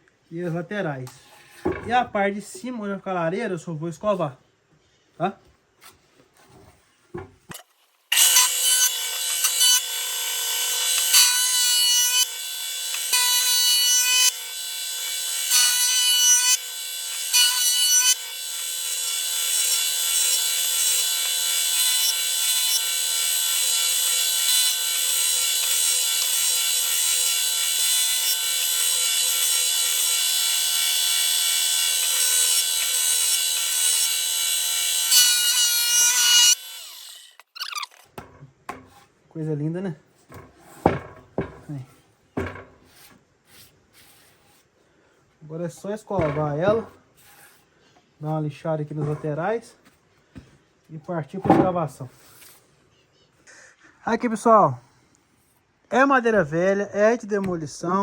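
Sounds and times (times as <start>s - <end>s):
electric planer shaving wood: 8.1s - 37.5s.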